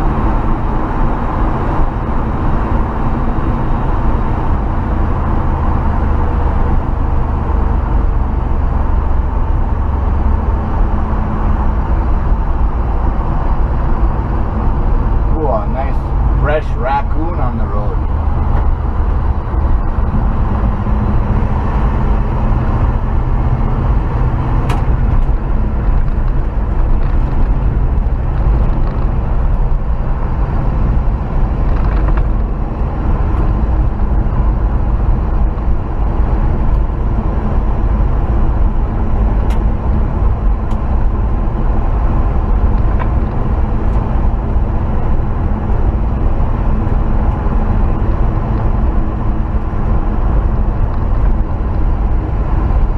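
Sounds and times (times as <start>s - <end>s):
pickup truck engine driving: 0.0s - 52.9s
road rumble: 0.0s - 52.9s.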